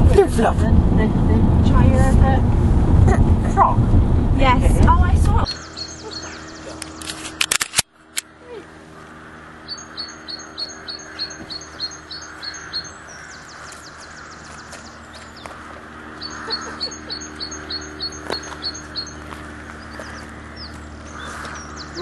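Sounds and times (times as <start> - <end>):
steady low hum: 0.0 - 22.0
small bird chirping: 5.4 - 7.0, 9.6 - 22.0.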